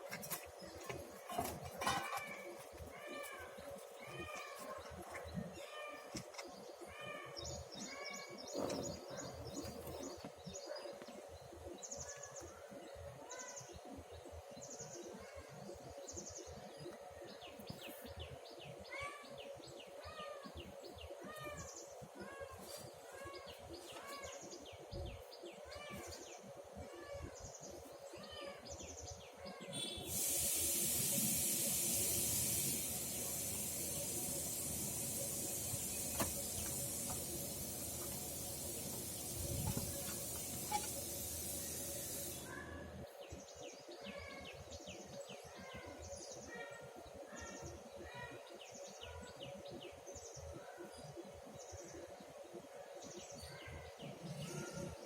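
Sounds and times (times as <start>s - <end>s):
small birds chirping and trilling: 0.0s - 55.0s
loud even hiss: 29.8s - 42.6s.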